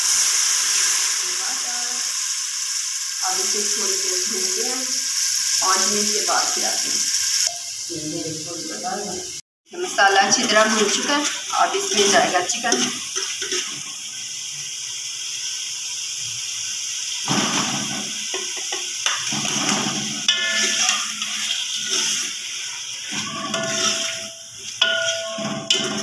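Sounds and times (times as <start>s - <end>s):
oil and spices sizzling in a pot: 0.0s - 26.0s
spoon stirring chicken: 10.6s - 13.7s, 20.3s - 22.4s, 23.0s - 26.0s.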